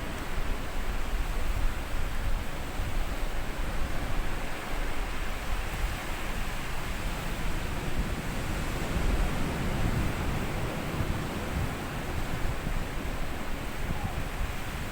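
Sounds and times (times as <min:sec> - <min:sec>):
small waves on a beach: 0:00.0 - 0:14.9.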